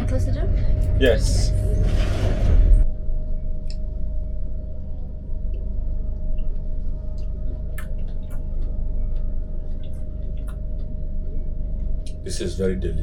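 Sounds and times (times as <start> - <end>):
train rumbling: 0.0 - 2.9, 12.1 - 13.0
steady hum: 0.0 - 13.0.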